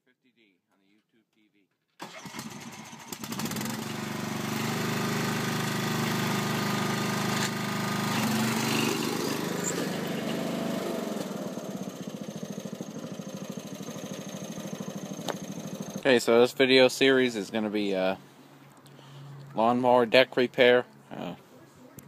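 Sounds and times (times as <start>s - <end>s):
lawn mower engine running: 2.0s - 16.1s.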